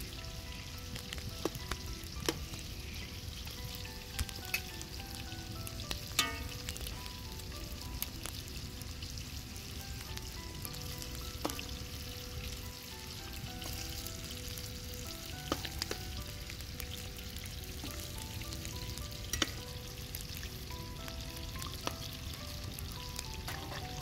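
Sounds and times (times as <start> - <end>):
food sizzling in oil: 0.0 - 24.0
metal ladle stirring in pan: 6.2 - 6.6.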